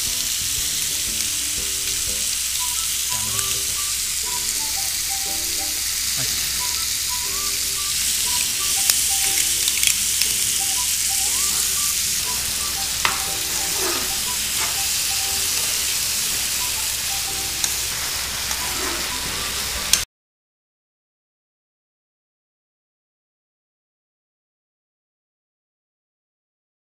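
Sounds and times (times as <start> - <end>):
chicken sizzling in oil: 0.0 - 20.0
steel spoon scraping a pan: 7.8 - 20.0.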